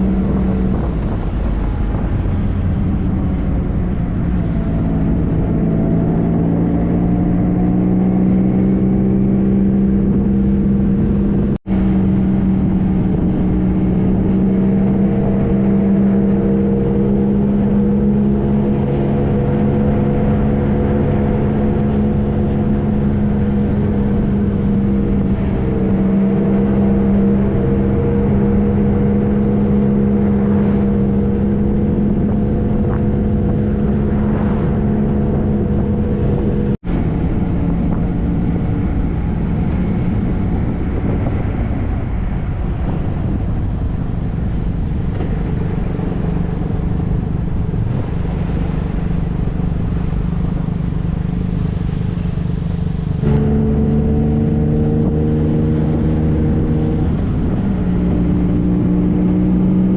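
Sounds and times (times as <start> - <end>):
motorcycle engine cruising: 0.0 - 59.9
wind and road noise: 0.0 - 59.9.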